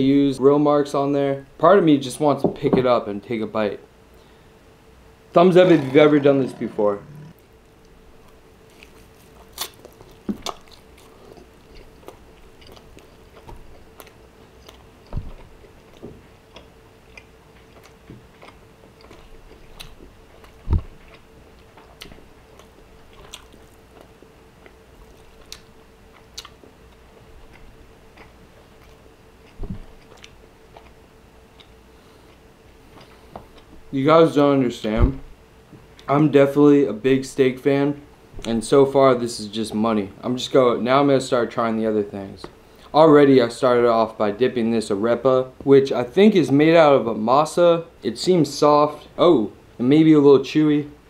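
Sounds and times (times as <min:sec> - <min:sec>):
faint steady hum: 0:00.0 - 0:51.0
person chewing steak: 0:07.0 - 0:33.8
dull thumps: 0:34.9 - 0:35.3.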